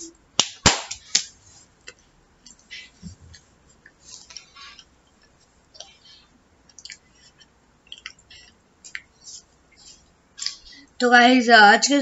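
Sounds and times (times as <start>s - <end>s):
person chewing: 1.8s - 10.8s
small mouth clicks: 1.9s - 10.7s.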